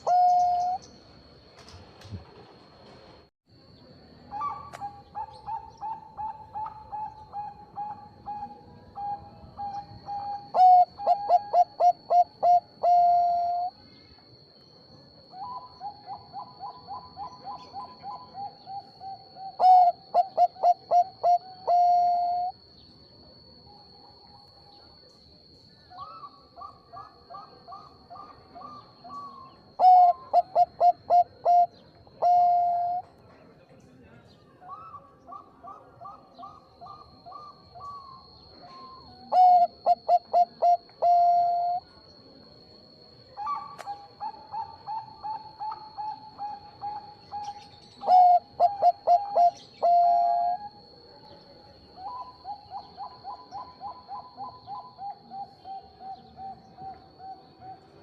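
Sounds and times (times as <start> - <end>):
dove cooing: 0.0 - 0.8, 4.3 - 13.8, 15.3 - 22.6, 26.0 - 33.0, 34.7 - 41.8, 43.4 - 50.9, 52.0 - 58.0.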